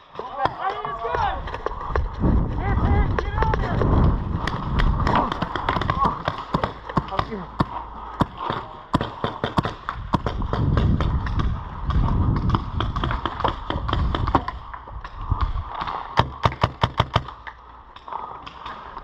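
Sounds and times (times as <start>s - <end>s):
paintball markers firing: 3.2s - 17.6s.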